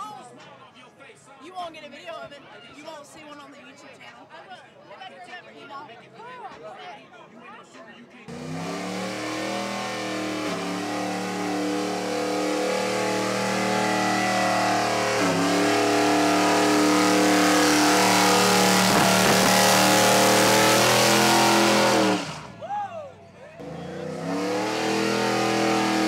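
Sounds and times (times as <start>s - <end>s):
truck engine revving: 8.3s - 22.6s, 23.6s - 26.0s.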